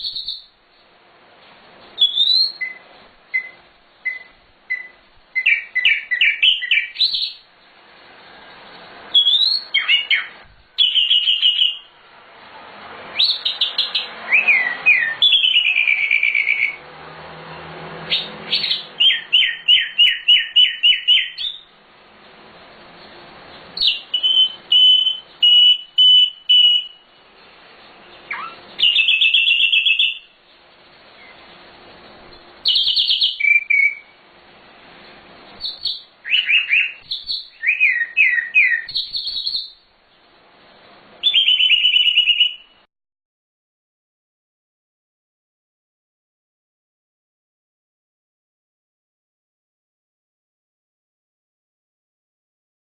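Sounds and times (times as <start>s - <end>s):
flycatcher singing: 9.1s - 11.9s, 18.1s - 21.7s, 23.5s - 27.1s, 28.1s - 30.4s, 32.3s - 34.1s, 35.6s - 39.8s, 41.2s - 42.7s.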